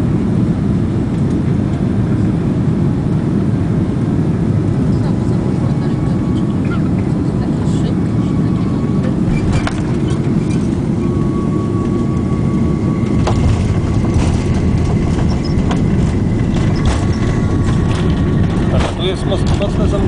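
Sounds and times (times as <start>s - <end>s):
airplane cabin rumble: 0.0s - 20.0s
knocks and rattles: 13.0s - 20.0s.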